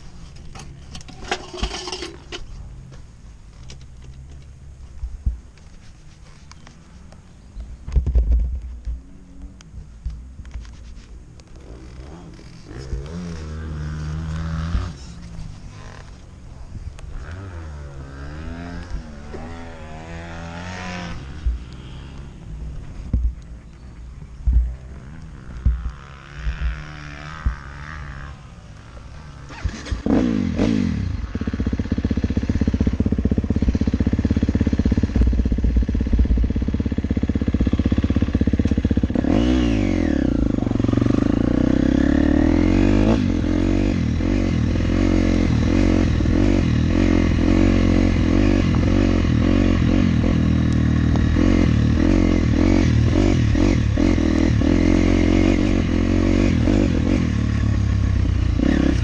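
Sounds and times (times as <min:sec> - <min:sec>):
dirt bike engine revving: 0:11.5 - 0:16.2, 0:17.1 - 0:22.9, 0:24.4 - 0:59.0.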